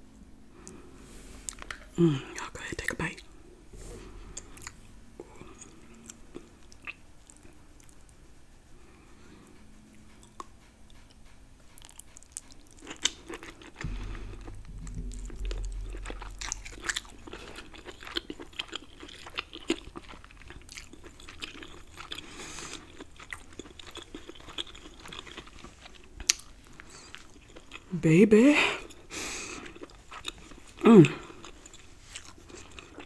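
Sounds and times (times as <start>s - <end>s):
low rumble: 0.1s - 6.1s, 13.7s - 21.4s
wet chewing and lip smacking: 4.2s - 8.2s, 8.8s - 27.9s, 28.8s - 33.0s.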